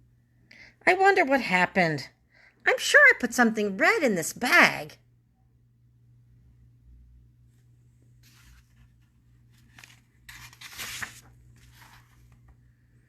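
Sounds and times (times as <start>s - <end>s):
paper rustling: 8.2s - 12.6s.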